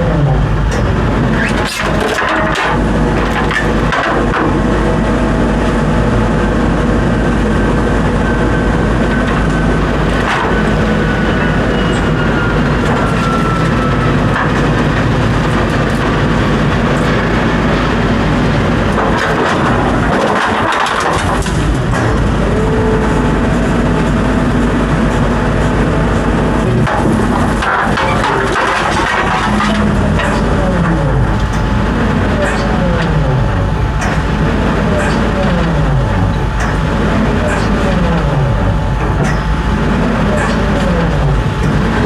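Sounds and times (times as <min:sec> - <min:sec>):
faint whine: 0:00.0 - 0:42.0
heavy equipment engine running: 0:00.0 - 0:42.0.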